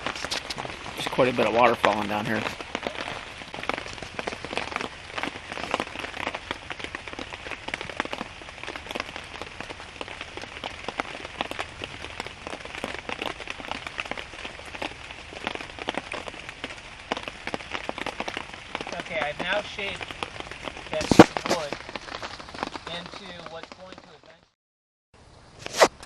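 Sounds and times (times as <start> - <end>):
rain pattering: 0.0 - 24.6.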